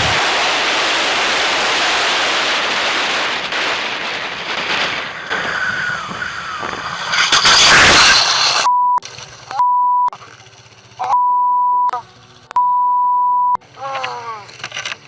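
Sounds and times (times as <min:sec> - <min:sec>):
wind rushing over microphone: 0:00.0 - 0:08.7
thin whine gliding down: 0:05.3 - 0:08.7.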